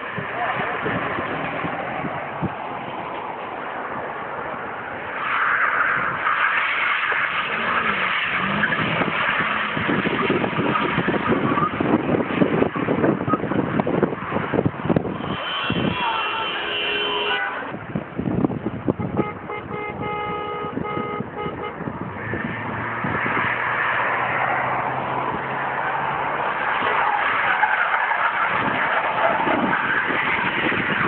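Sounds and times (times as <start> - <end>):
tyres hissing on wet road: 4.8 - 17.8, 22.2 - 31.0
car horns: 15.0 - 17.8, 18.9 - 22.8.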